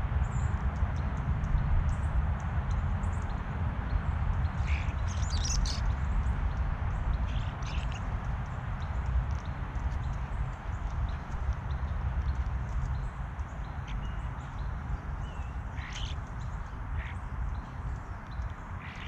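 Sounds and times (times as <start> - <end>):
steady low rumble: 0.0 - 19.0
bird chirps: 4.6 - 6.0, 7.3 - 8.1, 13.6 - 19.0.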